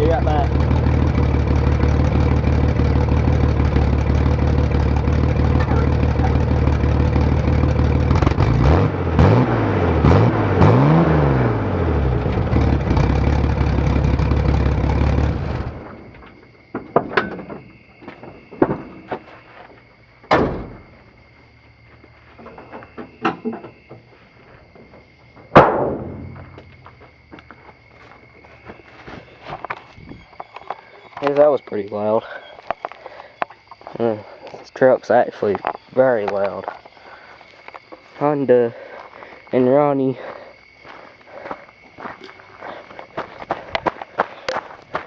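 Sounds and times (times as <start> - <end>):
engine exhaust idling and revving: 0.0 - 16.6
sharp knocks and clicks: 16.2 - 19.0.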